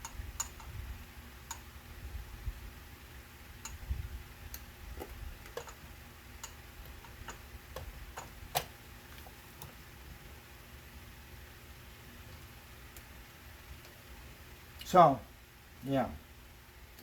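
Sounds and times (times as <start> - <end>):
small hard parts clicking: 4.5 - 5.8.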